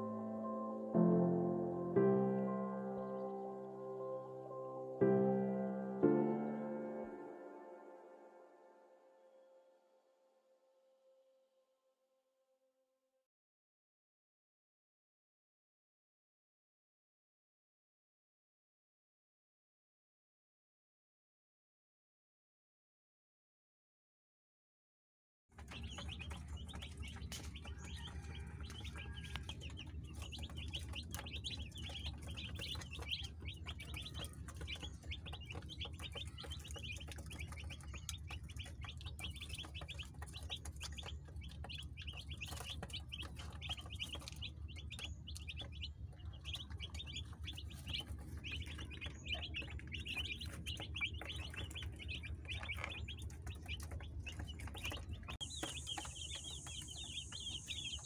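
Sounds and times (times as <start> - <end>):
chicks peeping: 25.6 - 58.0.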